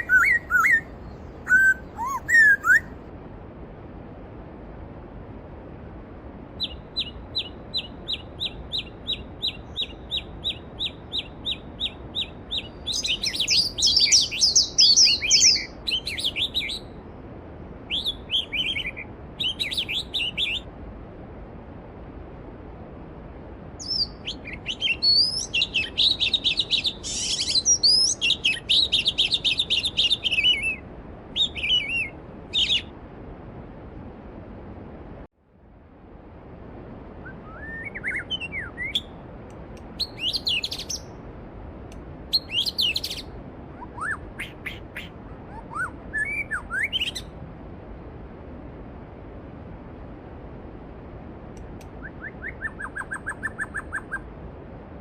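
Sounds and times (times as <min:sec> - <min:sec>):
songbirds singing: 0:00.0 - 0:03.0, 0:06.6 - 0:17.0, 0:17.8 - 0:20.7, 0:23.8 - 0:33.0, 0:37.3 - 0:39.2, 0:39.9 - 0:41.2, 0:42.3 - 0:47.4, 0:51.9 - 0:54.3.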